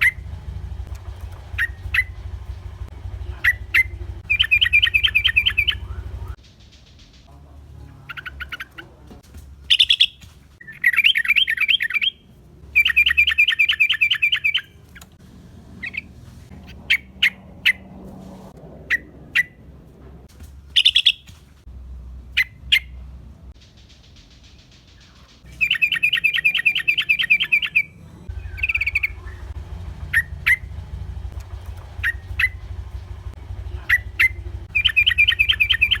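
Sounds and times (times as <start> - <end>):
low steady hum: 0.0 - 6.4
sharp bird chips: 1.5 - 2.6, 3.3 - 7.3, 9.7 - 12.2, 12.8 - 15.1, 20.7 - 21.5, 23.6 - 30.8, 32.0 - 33.0, 33.8 - 36.0
bird chattering calls: 1.5 - 7.2, 9.7 - 12.2, 12.8 - 15.1, 20.8 - 21.3, 23.6 - 36.0.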